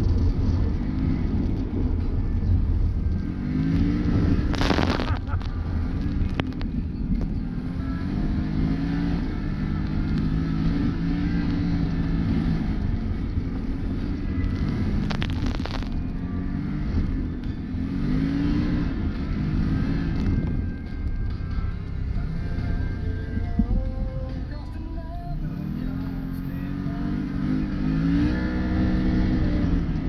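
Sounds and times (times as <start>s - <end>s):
engine revving under load: 3.0s - 6.8s, 7.4s - 20.7s, 25.2s - 30.0s.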